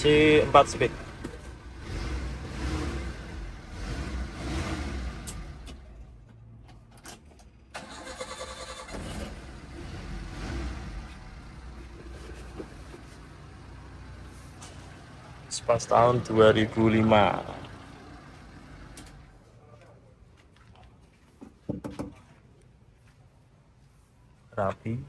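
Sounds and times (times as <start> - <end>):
engine cranking and starting: 7.0 - 11.0.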